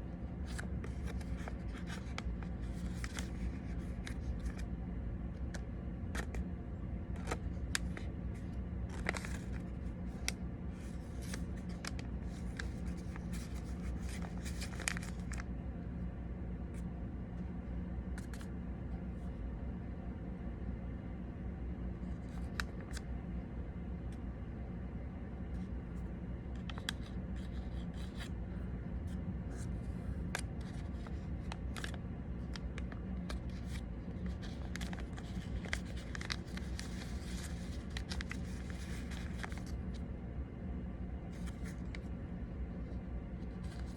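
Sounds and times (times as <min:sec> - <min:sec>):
steady low hum: 0:00.0 - 0:43.9
paper rustling and creasing: 0:00.4 - 0:04.7, 0:05.4 - 0:06.4, 0:07.1 - 0:15.5, 0:18.2 - 0:18.5, 0:22.0 - 0:23.0, 0:26.5 - 0:28.4, 0:29.1 - 0:40.0, 0:41.3 - 0:42.2, 0:43.4 - 0:43.9.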